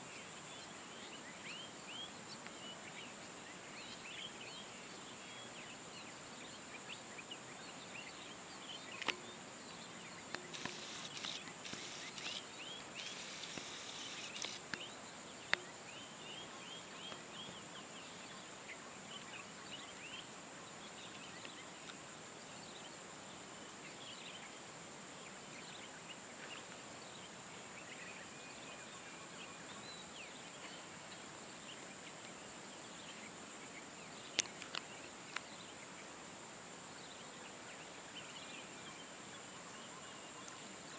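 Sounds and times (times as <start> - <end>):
high insect drone: 0.1 - 40.9
sharp clicks: 10.3 - 12.4, 13.0 - 14.9
short bird chirps: 10.4 - 14.9.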